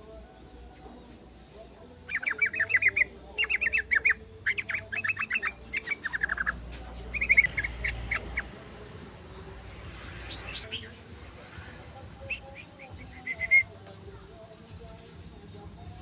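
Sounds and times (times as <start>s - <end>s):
bird chattering song: 1.4s - 8.7s, 9.4s - 16.0s.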